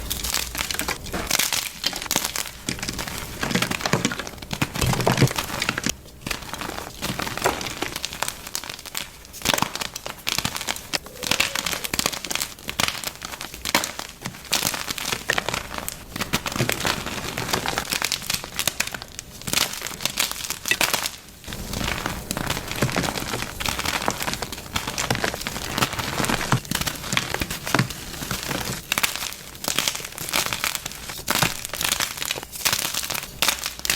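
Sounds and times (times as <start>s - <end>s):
chalk crunching and crackling: 0.0s - 33.9s.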